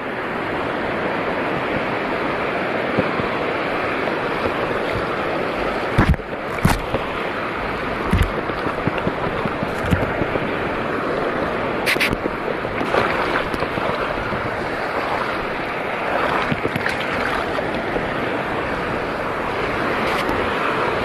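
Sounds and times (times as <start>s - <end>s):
sea water rushing: 0.0s - 21.0s
wind on microphone: 0.0s - 21.0s.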